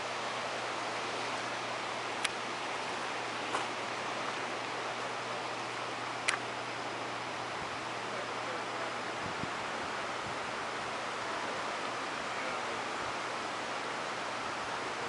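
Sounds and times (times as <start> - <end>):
creek water rushing: 0.0 - 15.0
faint short clicks: 6.2 - 6.4.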